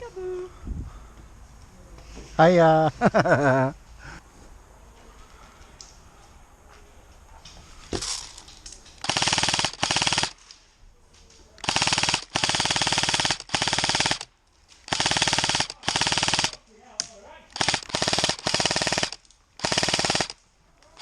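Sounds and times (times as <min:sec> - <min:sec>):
airsoft gun firing bursts: 0:09.0 - 0:10.4, 0:11.6 - 0:14.3, 0:14.9 - 0:16.6, 0:17.6 - 0:21.0.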